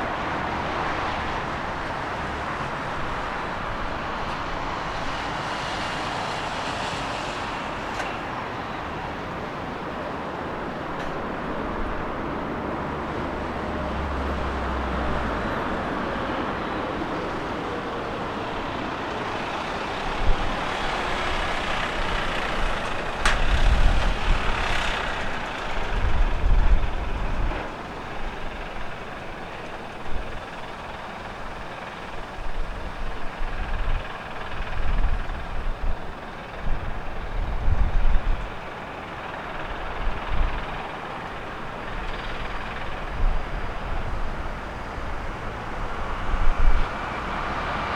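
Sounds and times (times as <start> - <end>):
wind buffeting microphone: 10.6 - 47.7.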